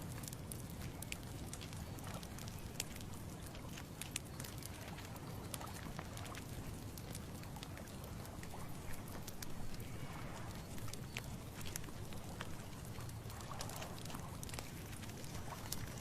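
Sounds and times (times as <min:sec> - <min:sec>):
low wind rumble: 0:00.0 - 0:16.0.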